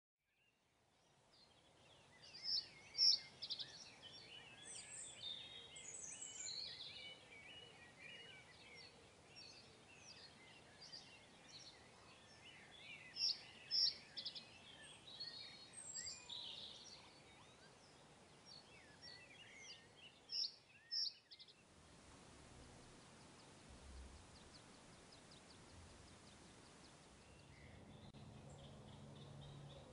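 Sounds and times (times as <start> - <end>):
birds chirping and warbling: 1.4 - 21.7, 22.6 - 29.9.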